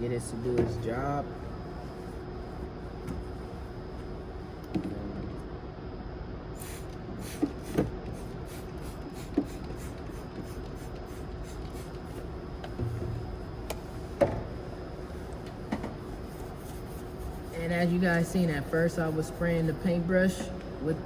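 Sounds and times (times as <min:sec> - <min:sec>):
spray bottle spraying: 0:06.6 - 0:12.0
paintbrush scrubbing: 0:16.0 - 0:19.9.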